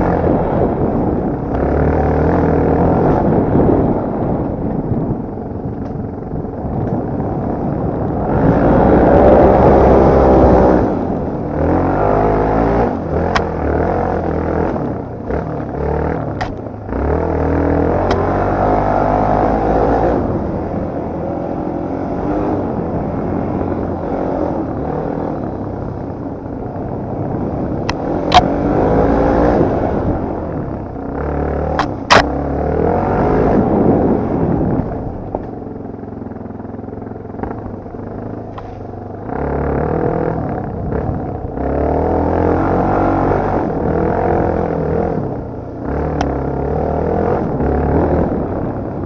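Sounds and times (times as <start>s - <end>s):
dirt bike engine revving: 0.0s - 5.1s, 7.2s - 49.0s
sharp clacks: 31.7s - 32.3s.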